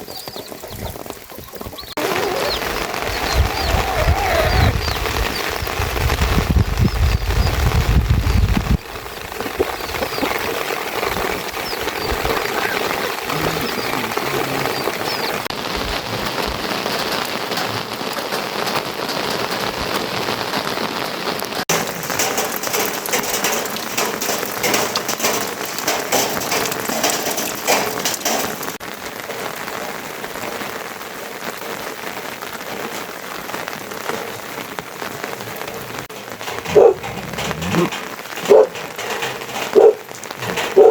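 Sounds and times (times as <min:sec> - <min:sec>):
steady rain falling: 0:00.0 - 0:40.9
water drips tapping: 0:08.8 - 0:15.5, 0:21.7 - 0:28.8, 0:36.0 - 0:40.9.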